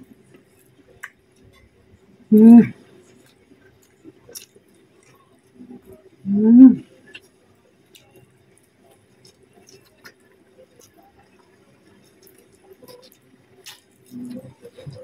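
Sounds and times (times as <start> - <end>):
low steady hum: 0.0 - 15.0
faint chewing: 2.4 - 6.1, 7.0 - 15.0.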